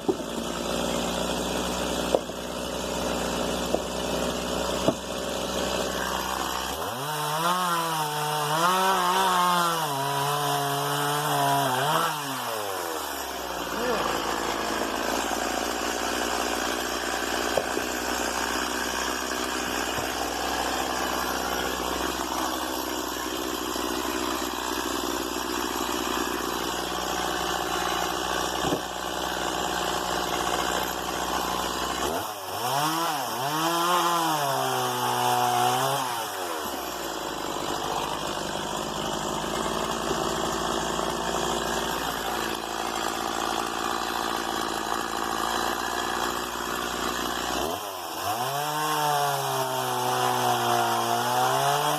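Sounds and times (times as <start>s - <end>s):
chainsaw running and revving: 0.0s - 51.9s.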